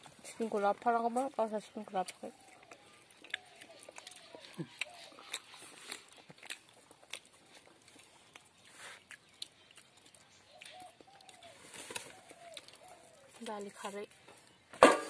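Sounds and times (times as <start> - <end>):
bird calling faintly: 10.2 - 14.4.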